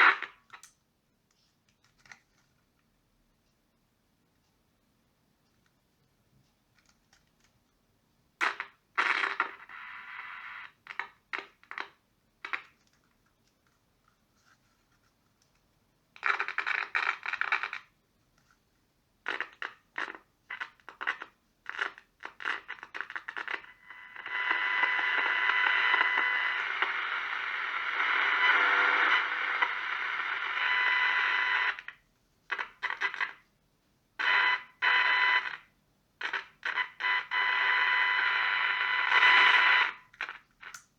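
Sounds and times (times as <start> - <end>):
radio static hiss: 0.0 - 0.5, 8.4 - 11.0, 19.3 - 33.4, 34.2 - 40.8
faint steady whine: 19.2 - 40.9.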